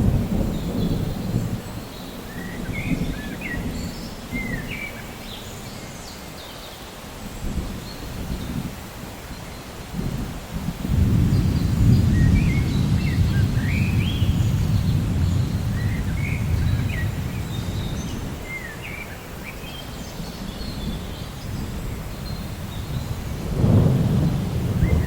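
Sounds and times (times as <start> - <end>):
thunder rumbling: 0.0 - 4.9, 9.9 - 18.6, 20.4 - 25.0.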